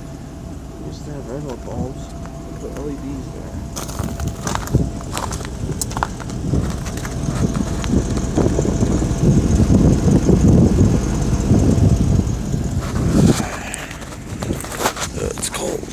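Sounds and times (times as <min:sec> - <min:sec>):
car engine rumble: 0:00.0 - 0:15.9
wind on microphone: 0:03.5 - 0:15.9.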